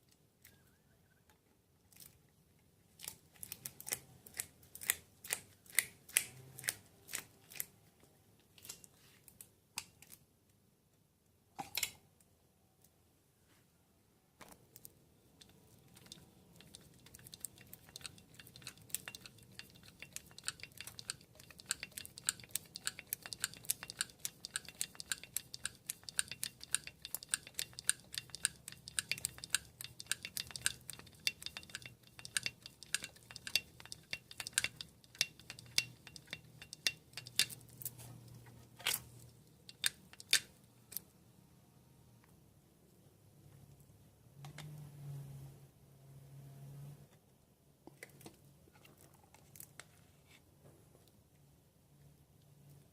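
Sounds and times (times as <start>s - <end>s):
grease gun metallic clicks: 15.4s - 37.7s, 39.6s - 41.0s.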